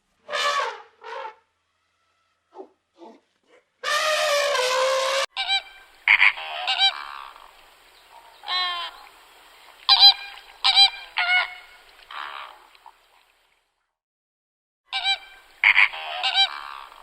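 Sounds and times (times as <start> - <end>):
flamingos honking: 3.8 - 12.7, 14.9 - 17.0.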